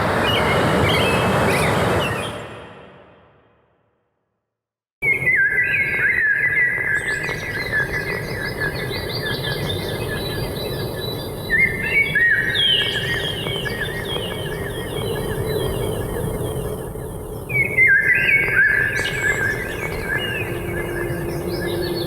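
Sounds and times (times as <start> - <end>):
songbirds singing: 5.0 - 22.0.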